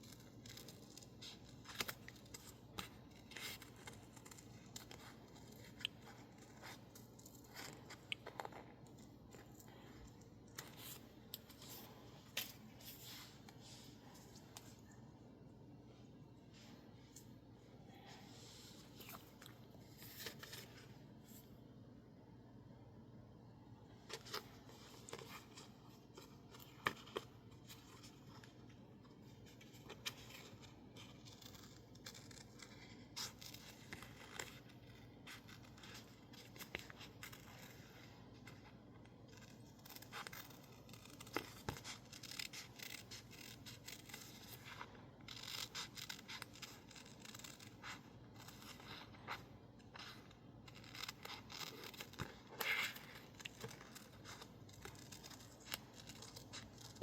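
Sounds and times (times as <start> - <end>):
scissors snipping paper: 0.0 - 8.7, 29.2 - 38.7, 39.3 - 57.0.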